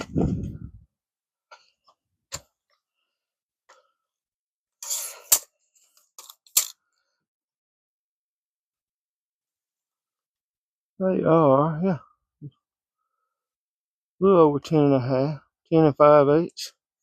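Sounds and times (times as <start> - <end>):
tape measure rasp: 4.8 - 5.5
tape measure blade clack: 6.2 - 6.8
tape measure clicks: 6.2 - 6.8.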